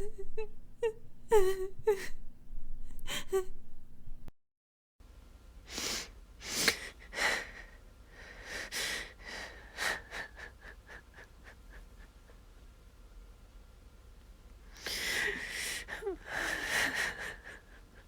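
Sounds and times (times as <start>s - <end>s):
woman sobbing: 0.0s - 4.3s, 9.1s - 12.4s, 15.0s - 18.0s.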